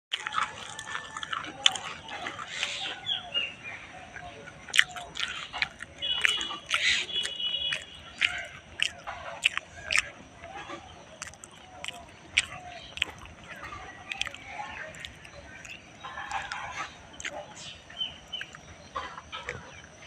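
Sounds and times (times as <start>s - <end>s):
small birds chirping: 0.1s - 20.0s
whistled bird notes: 2.1s - 9.2s.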